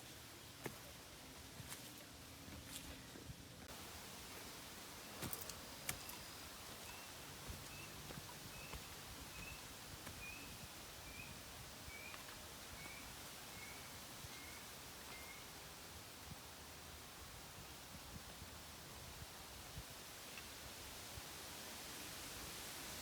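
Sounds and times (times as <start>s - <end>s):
faint outdoor hiss: 0.0s - 23.0s.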